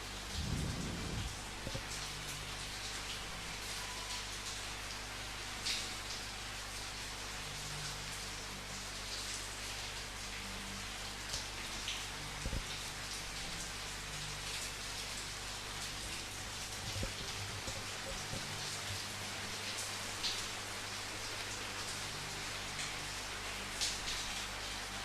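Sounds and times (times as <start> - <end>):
steady rain: 0.0 - 25.0
dull low thumps: 0.4 - 1.8.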